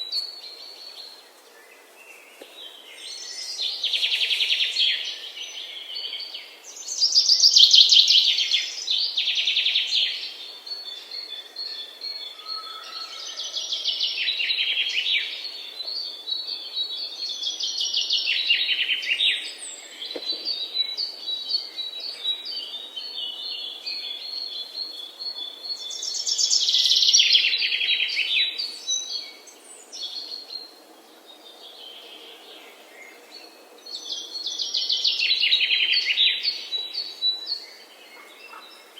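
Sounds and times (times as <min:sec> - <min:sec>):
songbirds trilling: 0:00.0 - 0:38.9.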